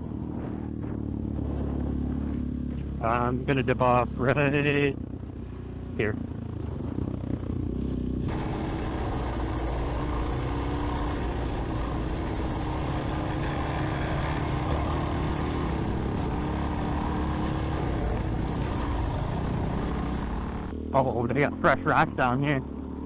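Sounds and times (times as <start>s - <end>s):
dirt bike engine running: 6.4s - 20.7s
wind noise: 8.3s - 20.7s.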